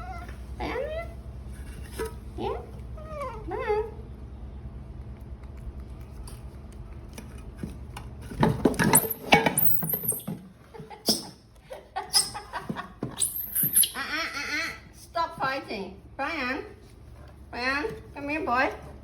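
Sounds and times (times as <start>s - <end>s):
baby monkeys squealing: 9.0s - 10.3s, 12.1s - 12.5s, 13.2s - 14.8s.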